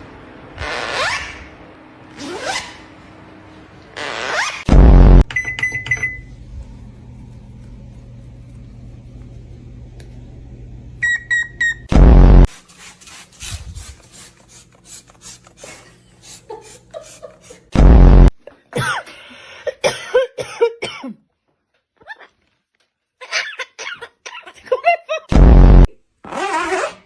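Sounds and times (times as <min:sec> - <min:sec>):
microwave running low hum: 0:00.0 - 0:04.0, 0:04.7 - 0:20.7
microwave oven beeping: 0:05.2 - 0:06.5, 0:10.9 - 0:11.9.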